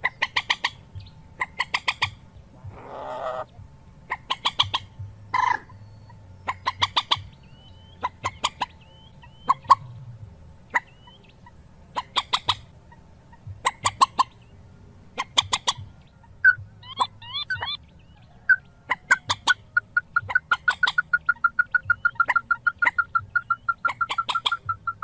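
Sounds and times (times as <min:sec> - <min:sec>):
rail bird calling: 0:00.0 - 0:25.0.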